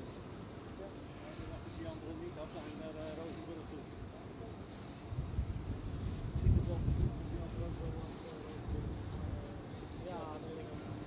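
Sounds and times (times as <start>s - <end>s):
faint voices talking: 0.7s - 11.0s
wind on microphone: 5.1s - 7.4s.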